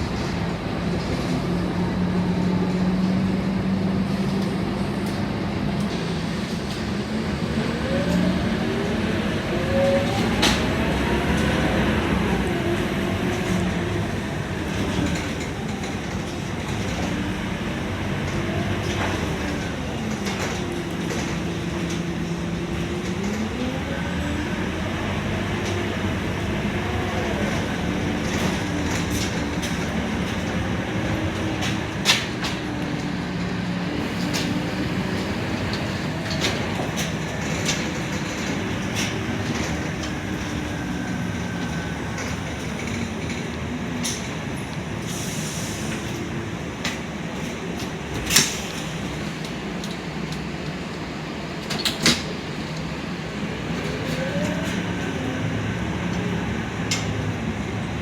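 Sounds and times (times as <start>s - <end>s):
bus engine: 0.0s - 58.0s
road noise: 0.0s - 58.0s.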